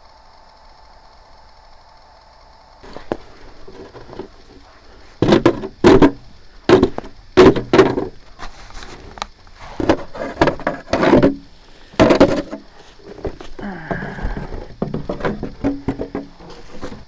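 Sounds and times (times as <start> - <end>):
knocks and scrapes on metal stairs: 5.2 - 8.2, 9.8 - 17.0.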